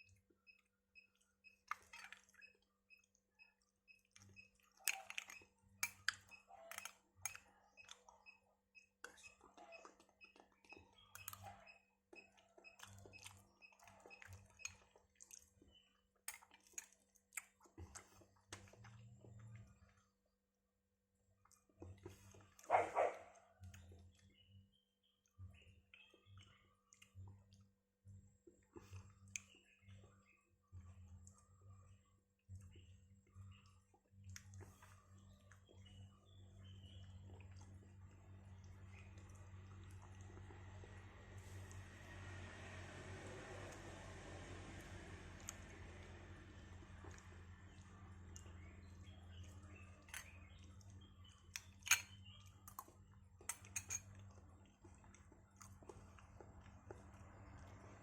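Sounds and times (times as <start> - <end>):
wet eating sounds: 9.0 - 20.2, 21.4 - 24.3, 28.4 - 58.0
low steady hum: 21.6 - 58.0.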